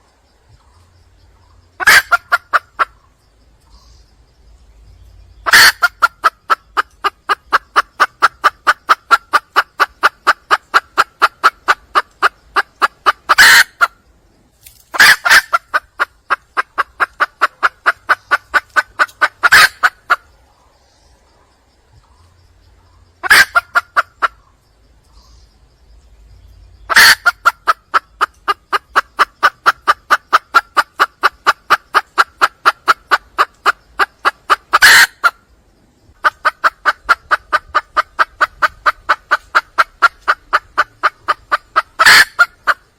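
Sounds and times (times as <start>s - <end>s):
hen clucking rapidly: 1.7s - 3.8s, 5.4s - 14.1s, 14.9s - 20.4s, 23.1s - 24.5s, 26.9s - 35.5s, 36.1s - 42.9s.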